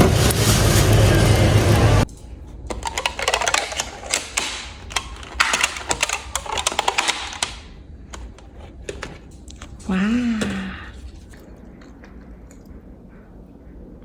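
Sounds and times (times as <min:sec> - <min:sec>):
rapid clicking and clattering: 0:02.6 - 0:09.1.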